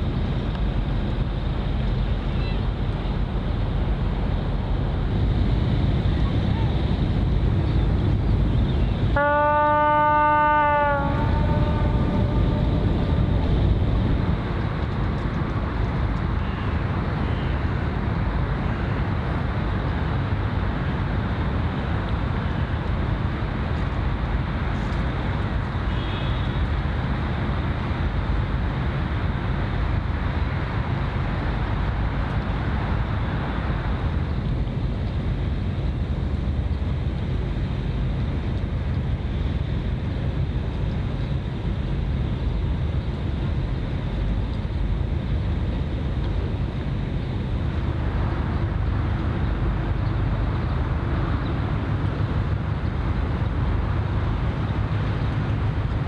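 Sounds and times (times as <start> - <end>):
ship's horn blast: 9.0 - 14.8
wind noise: 9.9 - 56.0
low rumble: 10.8 - 16.0.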